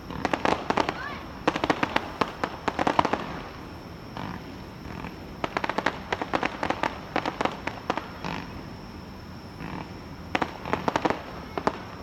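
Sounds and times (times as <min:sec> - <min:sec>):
fireworks crackling pops: 0:00.0 - 0:04.6, 0:05.4 - 0:08.5, 0:10.3 - 0:12.0
dull firework bursts: 0:00.0 - 0:12.0.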